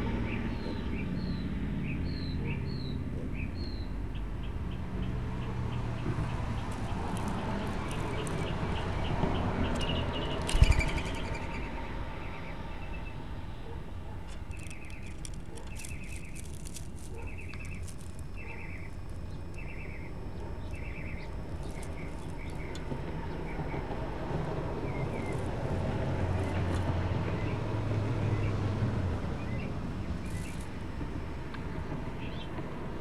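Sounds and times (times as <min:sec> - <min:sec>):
low outdoor noise: 0:00.0 - 0:33.0
small bird chirping: 0:05.7 - 0:13.2, 0:14.3 - 0:23.9, 0:24.8 - 0:25.7, 0:29.4 - 0:30.7.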